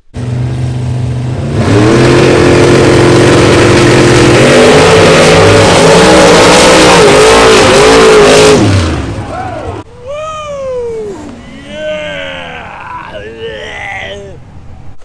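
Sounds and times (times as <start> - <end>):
vehicle engine revving: 0.2 - 9.3.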